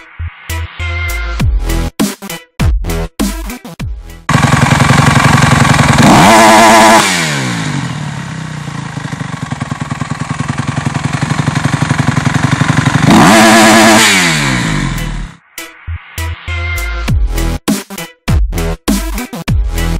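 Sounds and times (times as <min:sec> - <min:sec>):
motocross engine revving: 0:04.3 - 0:15.4.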